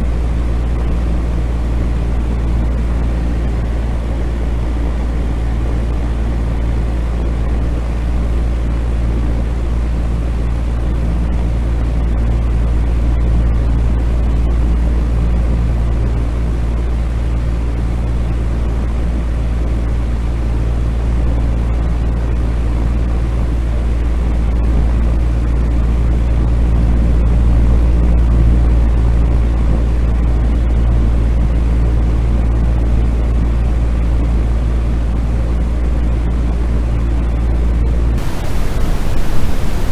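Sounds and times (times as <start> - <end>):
deep rumbling white noise: 38.2 - 39.9.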